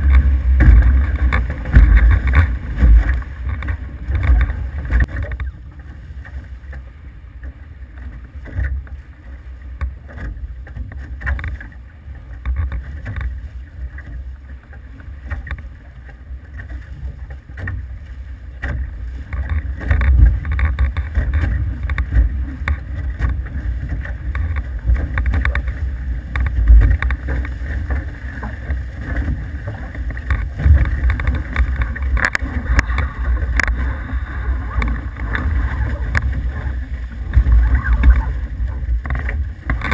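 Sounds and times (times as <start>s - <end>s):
wind buffeting microphone: 0.0s - 6.4s, 19.0s - 39.9s
water rushing past hulls: 0.0s - 39.9s.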